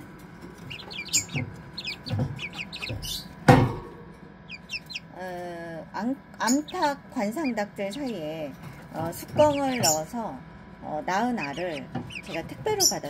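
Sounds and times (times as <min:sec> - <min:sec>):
chicks peeping: 0:00.0 - 0:03.8, 0:04.4 - 0:05.4, 0:06.4 - 0:10.3, 0:11.1 - 0:13.0
loud knock: 0:02.1 - 0:04.0.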